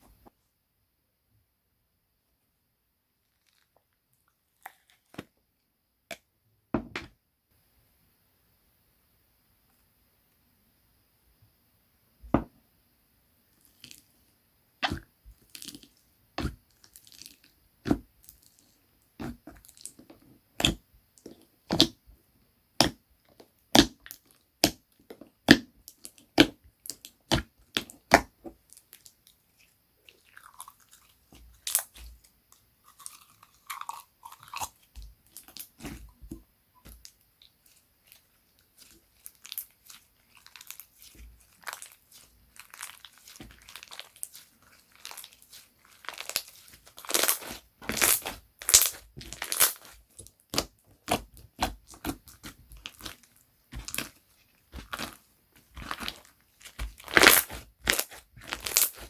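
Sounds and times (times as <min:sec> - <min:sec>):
slime squishing and crackling: 0:14.8 - 0:22.0, 0:22.8 - 0:59.0
slime clicking and popping: 0:38.8 - 0:53.2, 0:53.8 - 0:54.2, 0:54.8 - 0:59.0.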